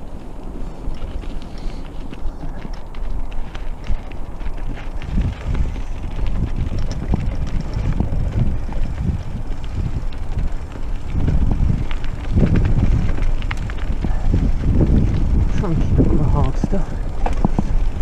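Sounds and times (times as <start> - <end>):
bike frame rattling: 0.0 - 18.0
wind rumble on microphone: 0.0 - 18.0.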